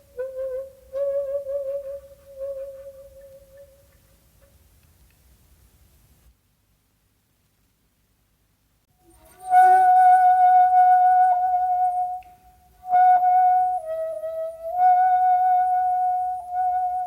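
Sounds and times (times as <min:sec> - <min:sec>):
shakuhachi flute long notes: 0:00.0 - 0:04.0, 0:09.0 - 0:17.0.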